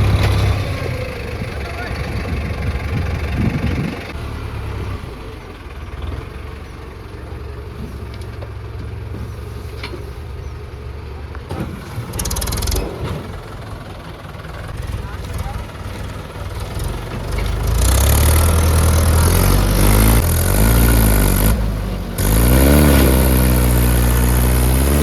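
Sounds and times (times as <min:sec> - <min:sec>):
engine idling: 0:00.0 - 0:25.0
short rapid rattle: 0:11.5 - 0:25.0.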